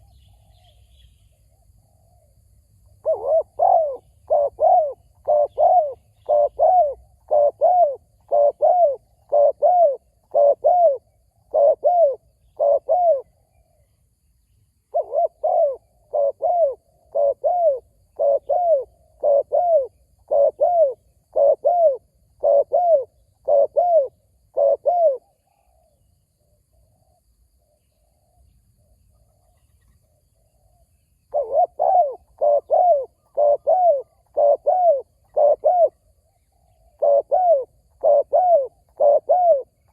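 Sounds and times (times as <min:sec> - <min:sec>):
dove cooing: 0:03.0 - 0:13.8, 0:14.9 - 0:26.0, 0:30.6 - 0:39.9.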